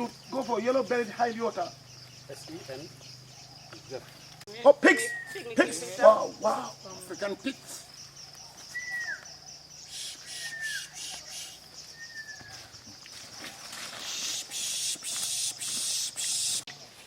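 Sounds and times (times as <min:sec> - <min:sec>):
bird whistling: 0:05.0 - 0:05.5, 0:08.7 - 0:12.6, 0:14.1 - 0:16.7
high hiss: 0:09.8 - 0:11.7, 0:13.9 - 0:16.7.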